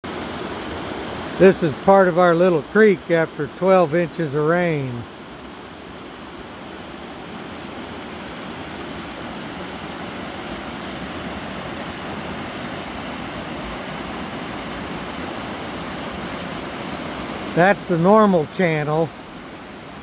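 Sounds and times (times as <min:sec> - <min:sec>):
creek water rushing: 0:00.0 - 0:20.0.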